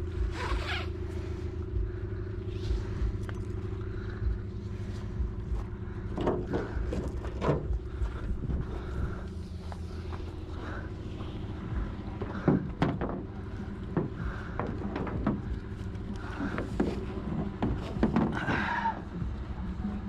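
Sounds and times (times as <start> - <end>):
truck engine idling: 0.0 - 20.0
clunks and knocks of boat: 6.1 - 9.0, 11.8 - 18.9.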